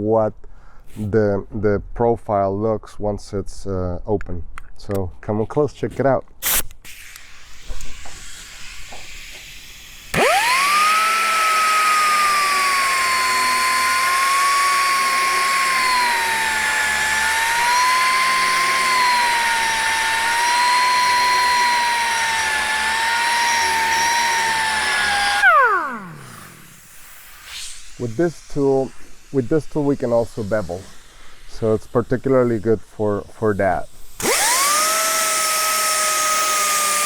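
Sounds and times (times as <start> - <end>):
air hiss: 6.4 - 17.3, 26.4 - 34.2
pneumatic grinder high whine: 6.4 - 29.7, 34.0 - 37.0.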